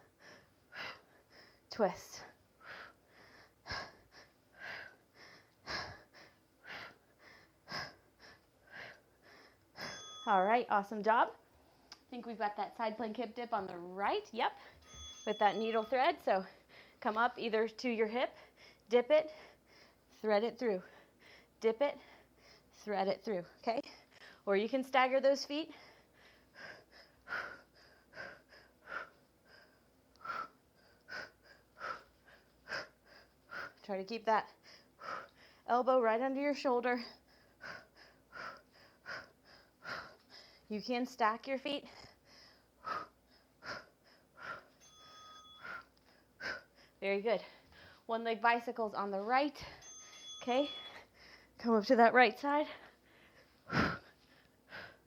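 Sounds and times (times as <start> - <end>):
person breathing hard: 0.0 - 10.1, 16.5 - 17.0, 25.7 - 33.8, 37.0 - 40.7, 41.9 - 44.9, 52.7 - 55.0.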